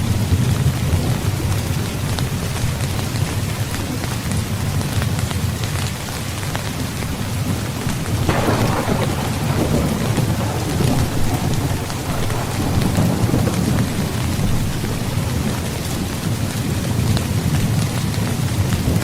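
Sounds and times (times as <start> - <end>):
heavy rain: 0.0 - 19.0
thunder rumbling: 6.9 - 19.0
thunderclap: 7.4 - 19.0.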